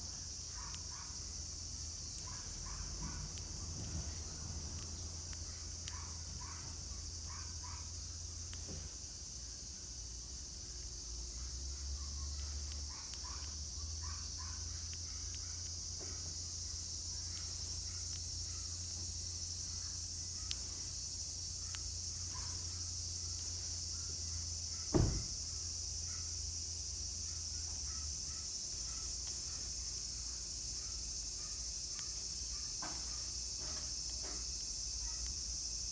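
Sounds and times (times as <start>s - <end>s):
faint chirps: 0.0s - 35.9s
insects singing: 0.0s - 35.9s
low thump: 24.9s - 25.4s.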